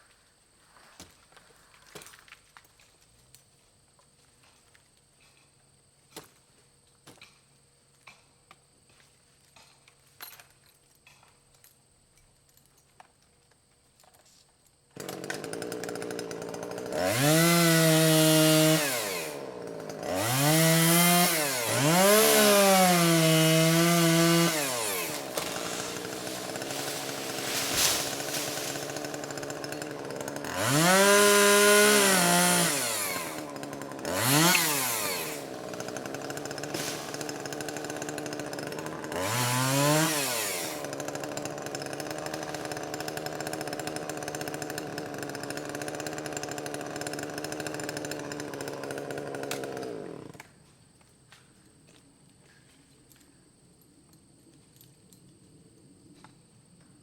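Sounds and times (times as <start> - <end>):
chainsaw engine revving: 15.0 - 50.5.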